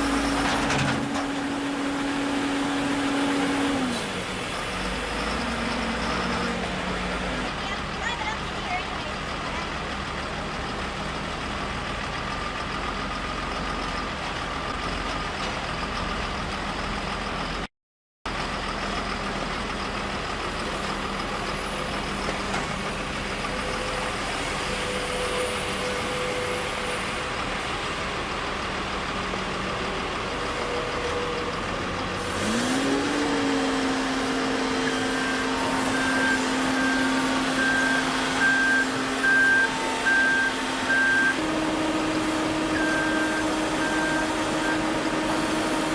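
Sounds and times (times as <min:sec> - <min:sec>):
construction machinery engines running: 0:00.0 - 0:17.7, 0:18.3 - 0:45.9
reversing alarm beeping: 0:34.8 - 0:41.6, 0:42.4 - 0:45.1.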